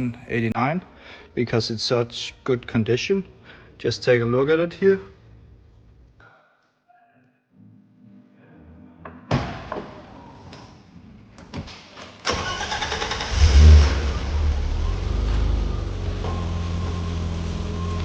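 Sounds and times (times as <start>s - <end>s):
car engine idling: 12.4s - 18.0s.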